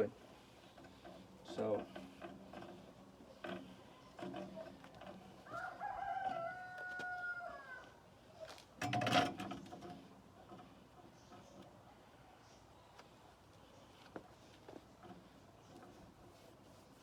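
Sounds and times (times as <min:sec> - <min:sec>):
rooster crowing: 0:05.4 - 0:08.0.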